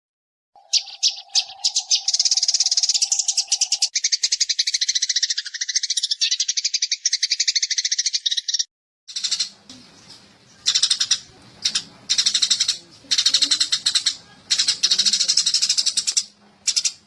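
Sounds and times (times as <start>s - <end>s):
sparrow rapid chirping: 0.6s - 17.0s.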